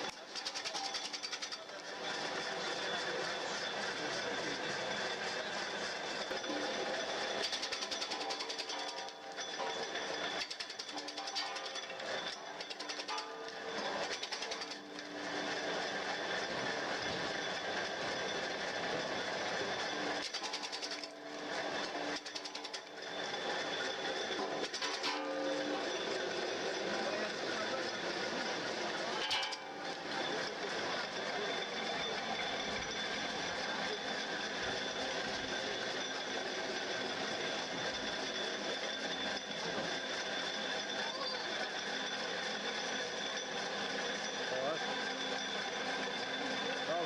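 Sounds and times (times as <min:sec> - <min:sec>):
firewood splitting machine running: 0:00.0 - 0:47.0
thin high whine: 0:00.0 - 0:47.0
firewood splitter clattering: 0:06.3 - 0:15.0, 0:24.5 - 0:25.7, 0:29.1 - 0:30.0
rapid clicking: 0:07.4 - 0:09.4, 0:10.2 - 0:15.4, 0:20.2 - 0:23.2.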